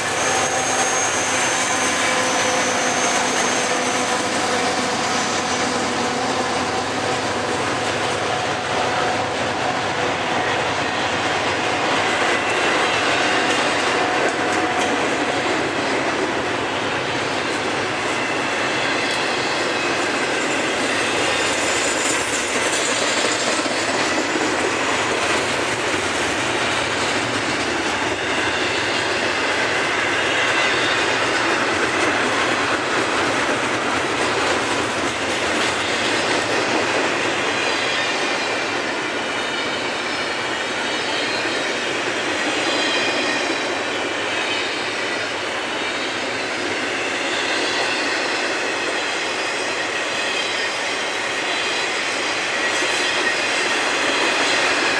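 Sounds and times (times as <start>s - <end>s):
faint wheel squeal: 0.0s - 6.0s
train wheels rolling on rail: 0.0s - 54.9s.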